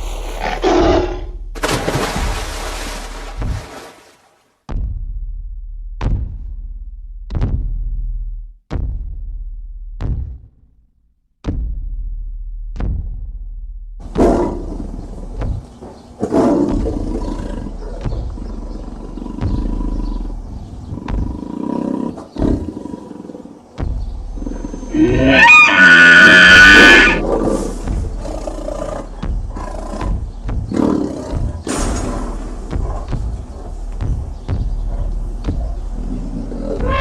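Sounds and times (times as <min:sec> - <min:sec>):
tiger roaring: 0:00.0 - 0:01.4, 0:14.0 - 0:37.0
background music: 0:14.0 - 0:37.0.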